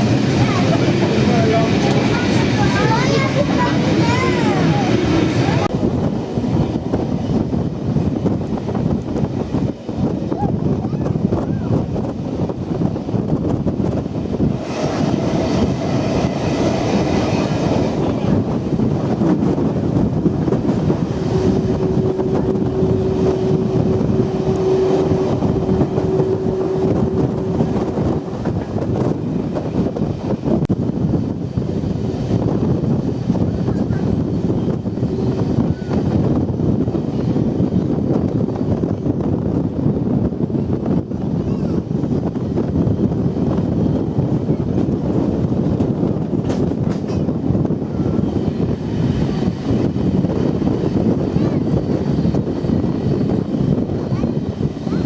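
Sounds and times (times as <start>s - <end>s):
train rumbling and rattling: 0.0s - 55.0s
wind on microphone: 0.0s - 55.0s
steady tone: 20.0s - 30.0s.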